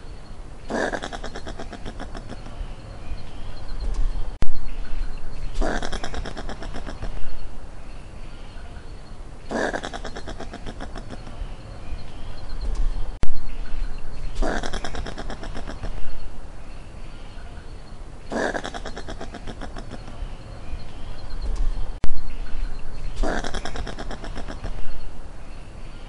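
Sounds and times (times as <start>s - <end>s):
sharp clicks: 12.6s - 13.3s.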